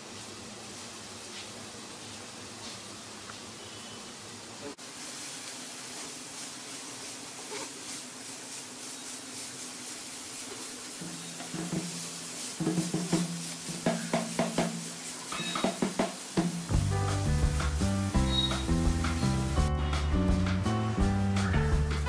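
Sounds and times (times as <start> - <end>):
carrot sizzling in hot fat: 0.0 - 22.0
wooden spatula scraping pan: 7.0 - 16.2
background music: 16.7 - 22.0.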